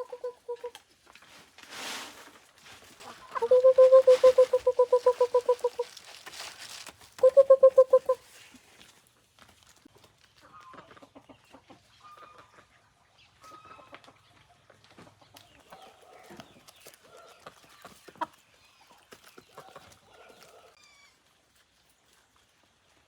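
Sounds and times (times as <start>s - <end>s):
farm animal pulsing call: 0.0s - 0.8s, 3.4s - 5.9s, 7.2s - 8.2s.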